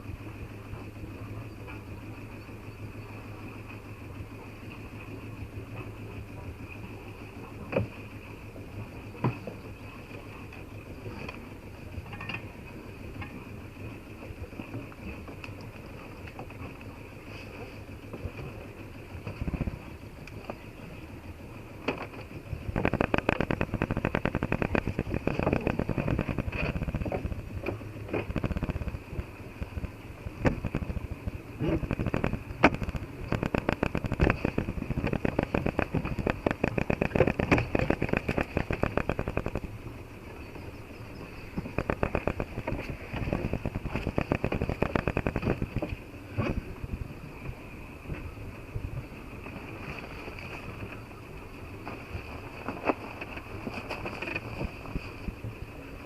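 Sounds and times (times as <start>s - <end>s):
boat engine running: 0.0s - 56.0s
dense crackling: 22.7s - 39.8s, 41.5s - 45.9s.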